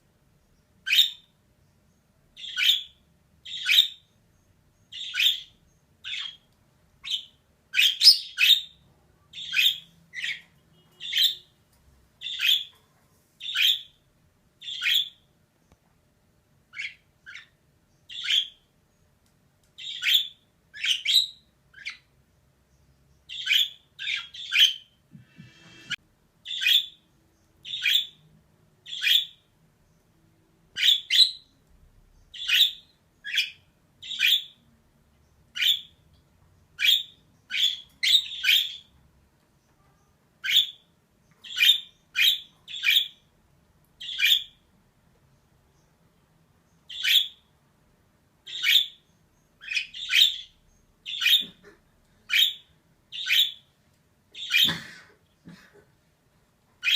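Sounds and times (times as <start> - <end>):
budgerigar chirping: 0.8 - 1.3, 2.4 - 4.1, 4.9 - 11.5, 12.2 - 12.7, 13.4 - 14.0, 14.6 - 15.2, 16.7 - 18.6, 19.8 - 22.1, 23.3 - 27.0, 27.6 - 28.2, 28.8 - 29.5, 30.8 - 31.5, 32.3 - 34.6, 35.5 - 36.0, 36.8 - 38.9, 40.4 - 43.3, 44.0 - 44.6, 46.9 - 47.5, 48.4 - 51.6, 52.3 - 53.7, 54.4 - 54.8.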